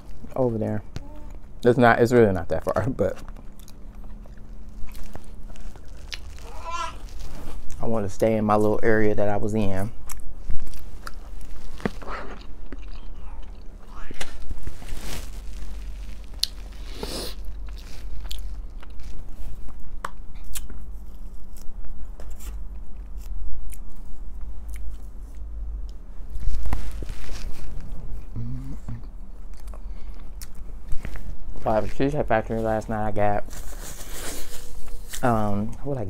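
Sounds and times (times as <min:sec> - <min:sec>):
chewing and wet mouth sounds: 0:03.1 - 0:07.8, 0:10.0 - 0:26.0, 0:27.5 - 0:31.3.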